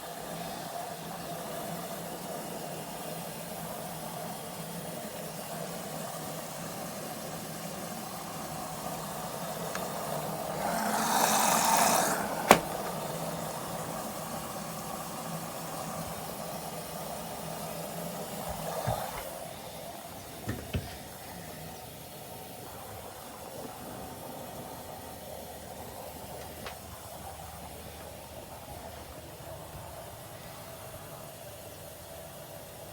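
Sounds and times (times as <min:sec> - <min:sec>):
washing machine hiss: 0:00.0 - 0:32.9
washing machine humming: 0:00.0 - 0:32.9
knocks: 0:20.4 - 0:21.0.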